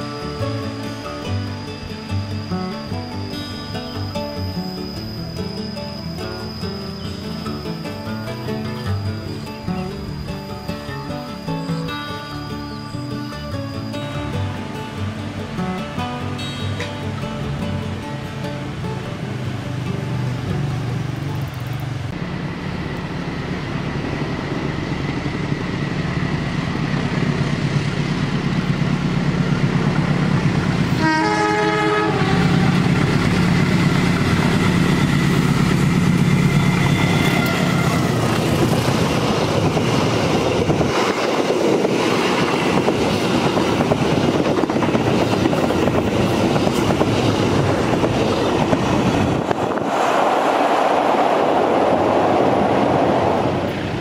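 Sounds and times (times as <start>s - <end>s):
locomotive engine hum: 0.0s - 54.0s
train horn blast: 16.4s - 17.0s, 30.9s - 32.9s, 36.5s - 38.3s.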